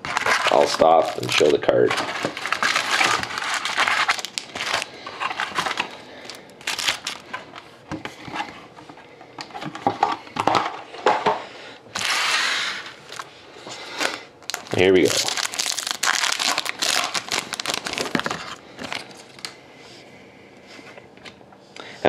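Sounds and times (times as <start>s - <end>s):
wrappers crinkling and tearing: 0.0s - 7.3s, 11.9s - 13.3s, 13.9s - 19.6s.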